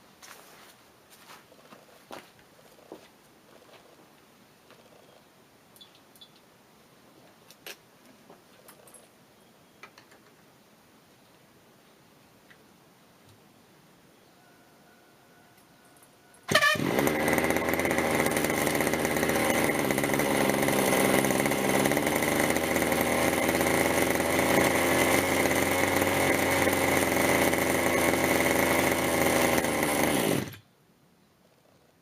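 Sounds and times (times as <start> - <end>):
model helicopter engine running: 16.5 - 30.6.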